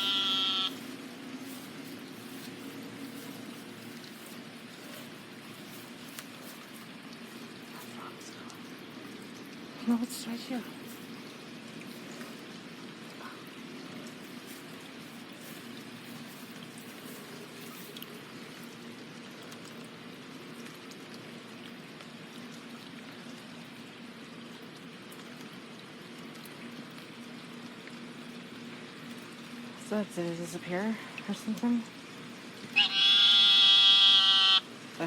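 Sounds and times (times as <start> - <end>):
low steady hum: 0.0 - 32.9
water trickling: 0.0 - 35.0.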